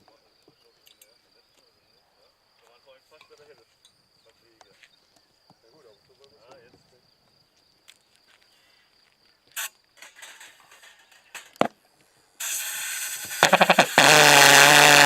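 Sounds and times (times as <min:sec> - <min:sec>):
loud steady hiss: 0:09.5 - 0:15.0
pulsejet engine popping: 0:13.2 - 0:15.0.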